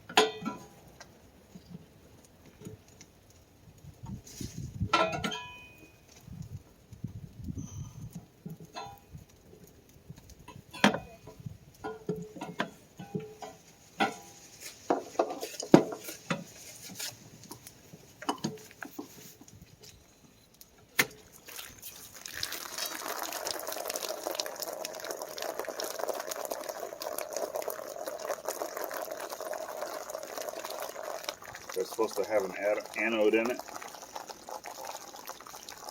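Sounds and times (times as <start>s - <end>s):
water pouring: 21.2s - 35.9s.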